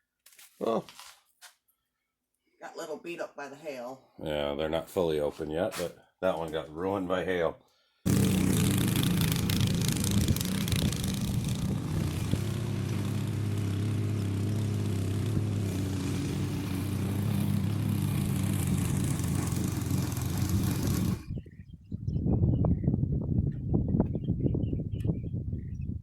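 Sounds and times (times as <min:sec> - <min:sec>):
small engine running: 0:08.1 - 0:21.3.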